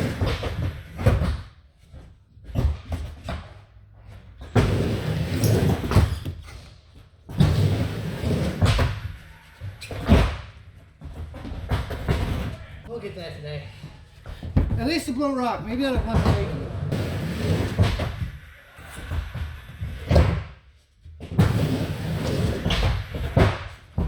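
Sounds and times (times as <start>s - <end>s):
skateboard wheels rumbling: 16.0s - 18.2s.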